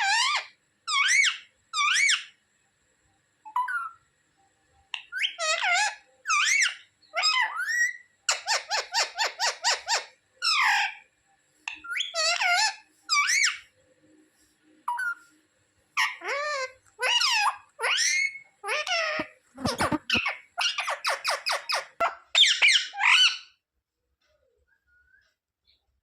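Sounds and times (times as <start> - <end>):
parrot shrill calls: 0.0 - 2.4, 5.0 - 11.0, 11.7 - 13.7, 14.9 - 15.2, 16.0 - 23.6
parrot rapid short notes: 19.6 - 20.3.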